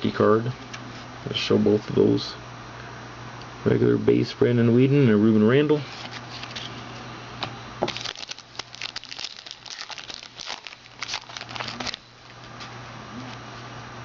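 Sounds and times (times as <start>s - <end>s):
steady low hum: 0.0s - 14.0s
foil wrapper crinkling and tearing: 7.8s - 12.4s.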